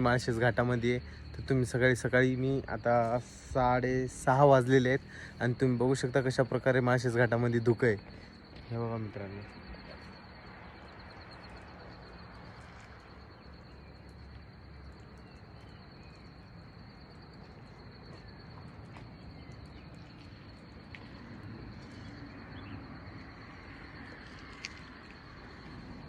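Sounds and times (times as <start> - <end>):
insects trilling: 0.0 - 26.0
faint bird chirps: 7.0 - 24.7.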